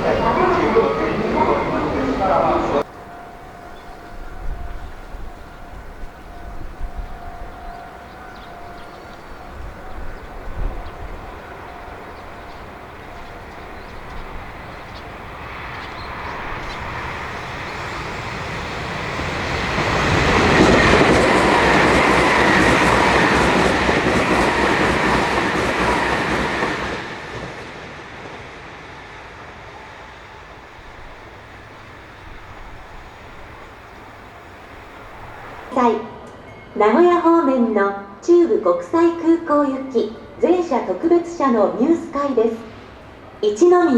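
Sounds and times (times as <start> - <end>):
electric train passing: 0.0 - 43.9
train whine: 0.0 - 43.9.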